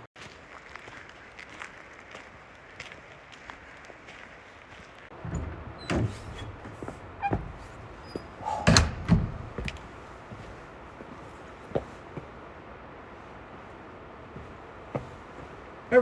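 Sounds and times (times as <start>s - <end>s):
door knocks and thuds: 5.2s - 10.0s.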